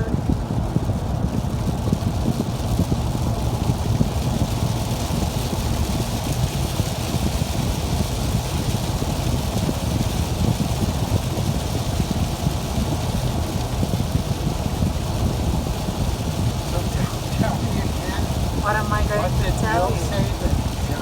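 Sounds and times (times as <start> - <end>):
car cabin road noise: 13.0 - 21.0.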